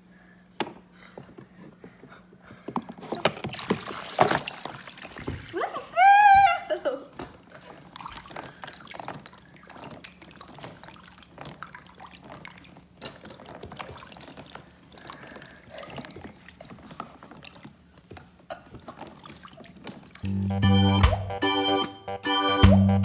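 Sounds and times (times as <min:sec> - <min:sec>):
water trickling and splashing: 0:03.2 - 0:05.8, 0:07.5 - 0:20.2
organ-like keyboard music: 0:20.2 - 0:23.0.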